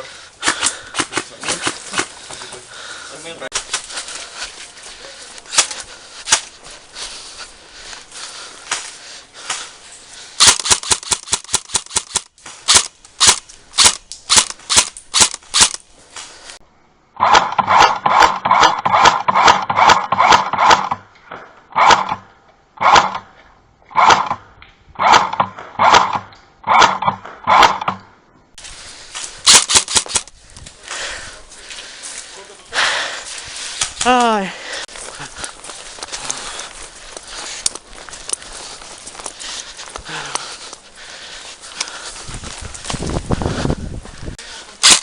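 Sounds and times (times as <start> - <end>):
airsoft gun automatic bursts: 10.4 - 15.8, 17.2 - 21.0, 22.8 - 23.2, 25.0 - 28.0, 29.5 - 30.3.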